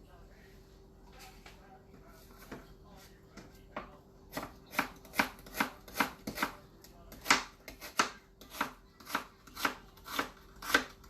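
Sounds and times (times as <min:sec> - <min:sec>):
knife chopping vegetables: 0:03.3 - 0:11.0.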